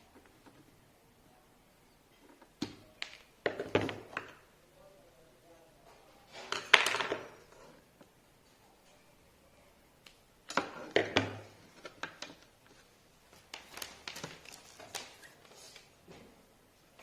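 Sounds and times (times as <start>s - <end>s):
hard objects knocking and clattering: 2.1s - 4.5s, 6.3s - 8.6s, 10.5s - 12.5s.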